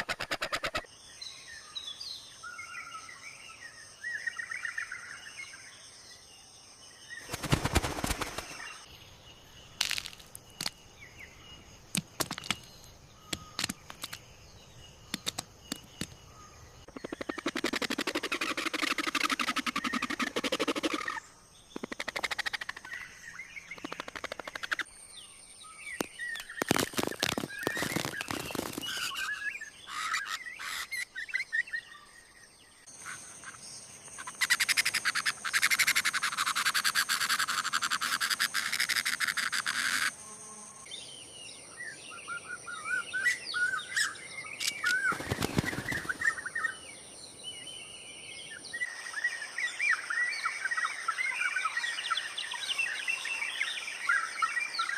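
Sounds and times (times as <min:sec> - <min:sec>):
forest ambience: 0:00.0 - 0:54.9
birds chirping: 0:06.9 - 0:39.9, 0:40.9 - 0:54.9
rapid clicking or fluttering: 0:07.2 - 0:08.8, 0:17.0 - 0:21.2, 0:23.8 - 0:24.8, 0:26.4 - 0:29.2.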